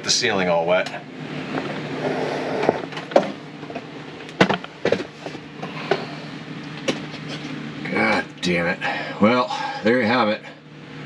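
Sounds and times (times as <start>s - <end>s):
steady low hum: 0.0s - 11.0s
knocks and clatters of hose: 4.4s - 6.0s.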